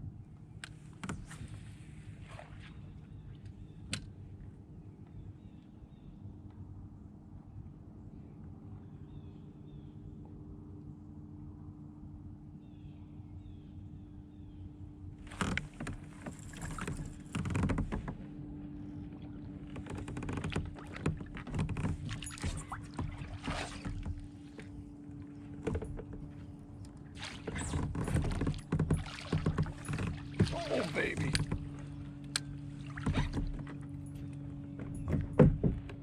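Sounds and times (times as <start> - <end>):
water splashes: 2.2 - 3.0, 18.9 - 24.8, 27.0 - 33.9
handling knocks on kayak: 19.7 - 24.8, 27.3 - 31.9, 32.8 - 33.9, 34.7 - 36.0.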